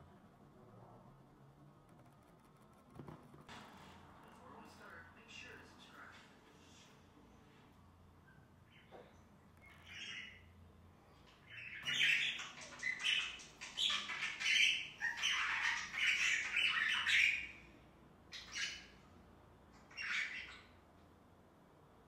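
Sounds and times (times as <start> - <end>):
budgerigars chattering: 11.5 - 17.6.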